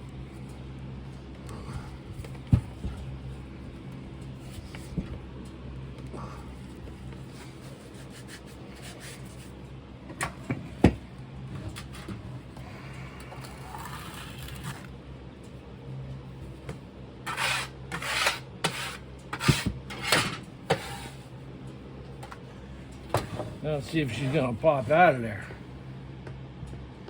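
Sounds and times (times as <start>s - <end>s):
sand scraping: 17.3s - 20.1s.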